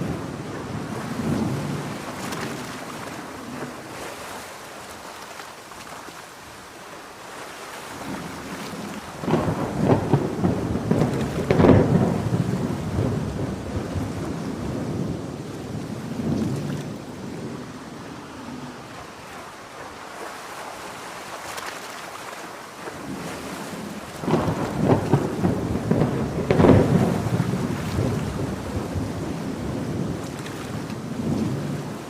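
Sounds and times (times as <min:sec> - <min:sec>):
rolling thunder: 0:00.0 - 0:02.9, 0:09.0 - 0:19.1, 0:23.0 - 0:32.0
steady rain: 0:00.0 - 0:32.0.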